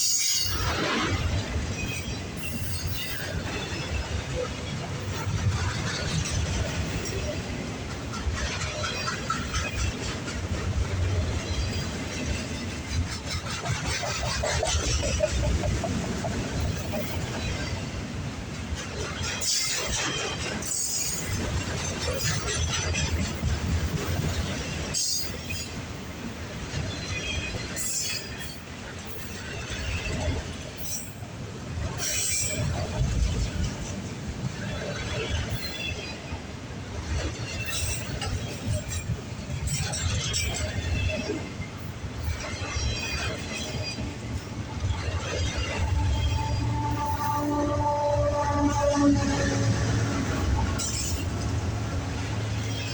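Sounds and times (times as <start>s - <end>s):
rail clicks: 0.0s - 52.9s
train wheels rumbling on rail: 0.0s - 52.9s.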